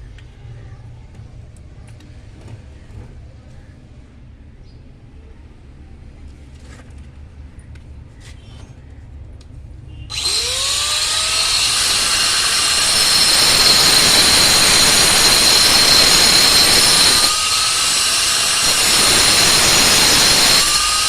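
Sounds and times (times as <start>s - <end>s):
power tool whining and grinding: 10.1s - 21.0s.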